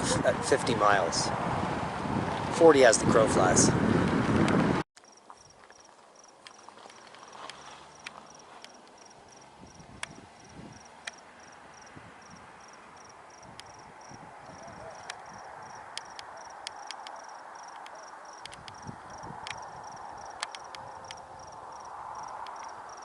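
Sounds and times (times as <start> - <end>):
cricket chirping: 5.0 - 23.0
sharp clicks: 10.0 - 10.2, 13.5 - 13.8, 15.0 - 15.3, 15.9 - 18.8, 19.4 - 21.2.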